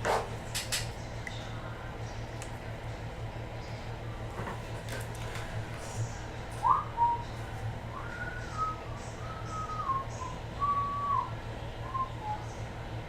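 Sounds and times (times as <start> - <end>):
low steady hum: 0.0 - 13.0
person whistling a slow tune: 6.6 - 7.2, 7.9 - 12.5.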